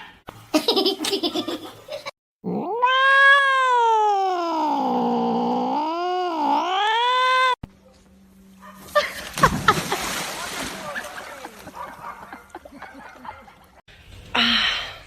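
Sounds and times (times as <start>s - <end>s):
cat yowling: 2.5s - 7.6s.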